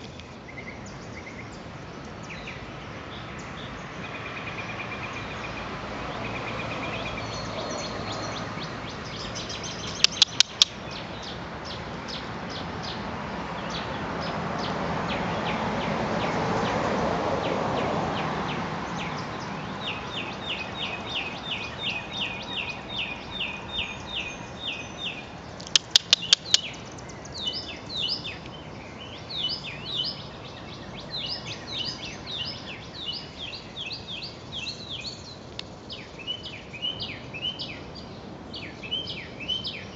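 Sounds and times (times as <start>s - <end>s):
birds chirping: 0.0s - 39.9s
bursts of sharp clicks: 10.0s - 10.8s, 25.6s - 26.7s.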